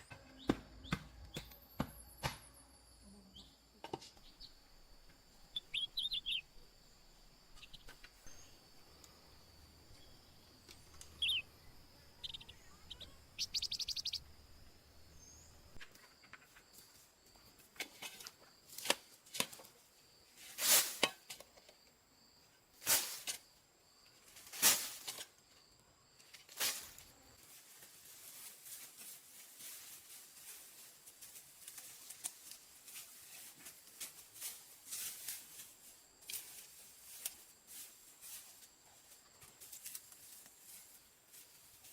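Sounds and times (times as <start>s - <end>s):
short bird calls: 11.1s - 11.5s.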